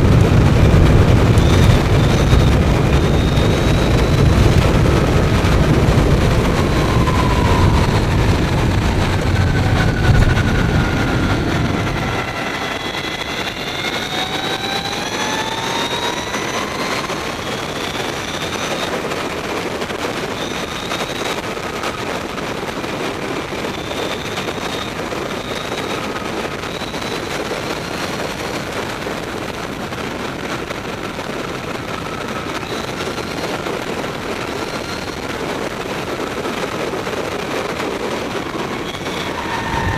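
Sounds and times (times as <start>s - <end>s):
heavy low rumble: 0.0s - 18.6s, 37.4s - 39.9s
electric motorcycle motor whine: 0.0s - 18.8s
wind rushing: 0.0s - 20.3s, 37.0s - 39.9s.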